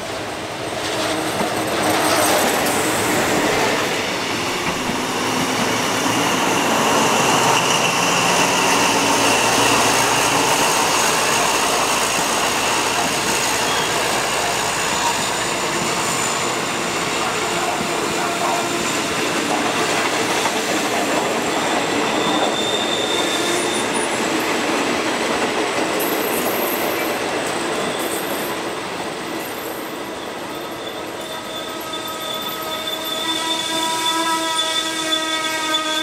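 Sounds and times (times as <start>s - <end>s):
train wheels rumbling on rail: 0.0s - 36.0s
faint high wheel squeal: 13.3s - 17.6s, 21.4s - 24.2s, 27.8s - 28.6s, 29.5s - 36.0s.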